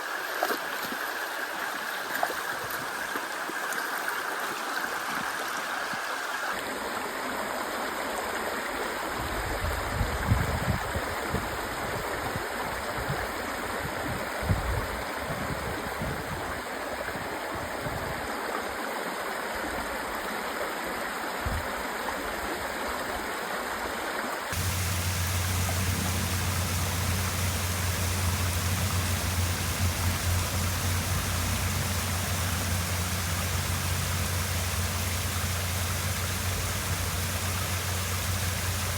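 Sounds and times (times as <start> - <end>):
waterfall and stream rushing: 24.2 - 38.9
steady low hum: 24.6 - 38.9.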